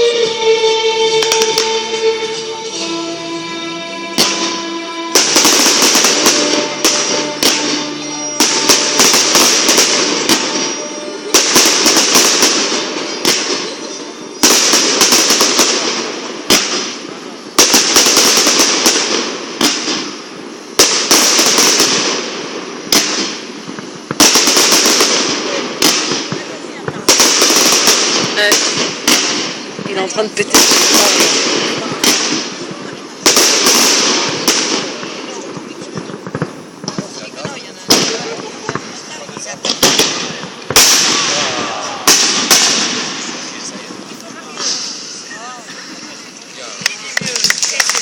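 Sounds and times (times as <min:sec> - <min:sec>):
music: 0:00.0 - 0:11.6
firework crackling: 0:00.0 - 0:48.0
firework shells bursting: 0:00.0 - 0:48.0.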